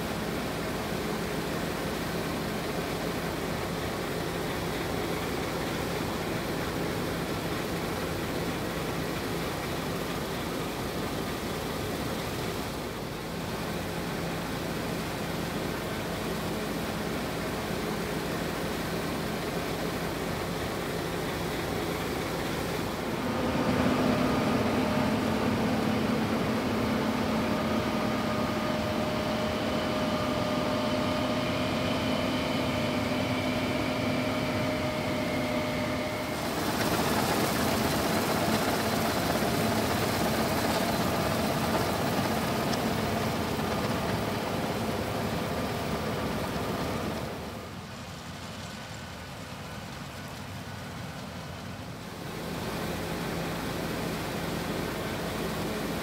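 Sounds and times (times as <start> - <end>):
combine harvester machinery drone: 0.0 - 56.0.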